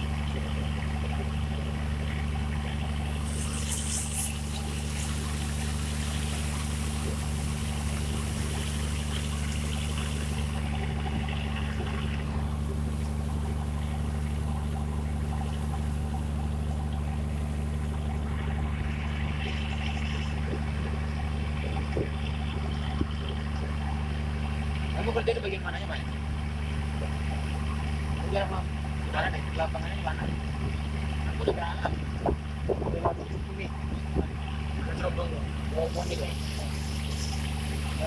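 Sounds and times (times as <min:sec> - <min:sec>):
engine humming: 0:00.0 - 0:38.0
even hiss: 0:03.2 - 0:10.6, 0:35.7 - 0:38.0.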